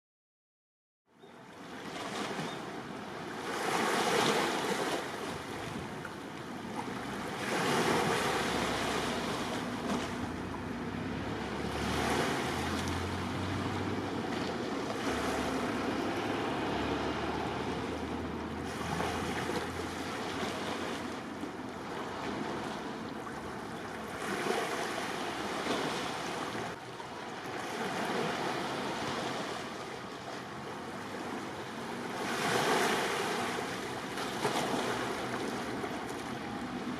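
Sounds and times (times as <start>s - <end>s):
sea waves washing in: 1.6s - 36.9s
wind on microphone: 5.2s - 6.1s.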